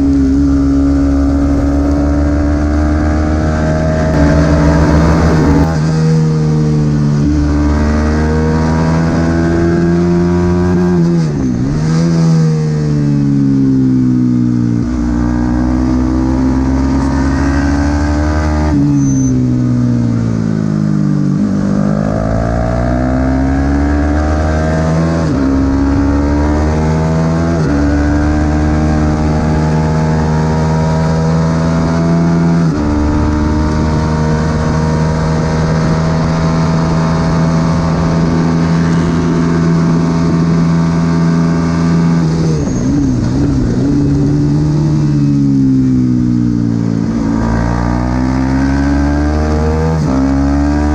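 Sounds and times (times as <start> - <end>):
wind noise: 0.0 - 12.1, 22.5 - 50.9
racing motorcycle engine revving: 0.0 - 50.9.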